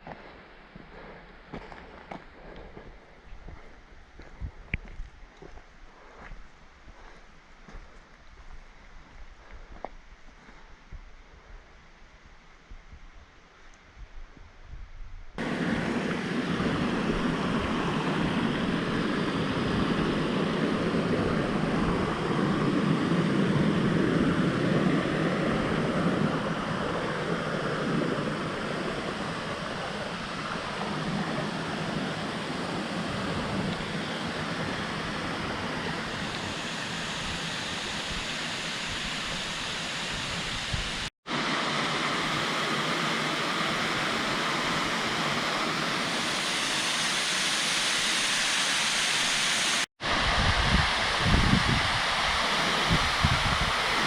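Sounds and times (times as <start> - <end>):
waterfall rushing: 15.4 - 23.4, 25.0 - 54.0.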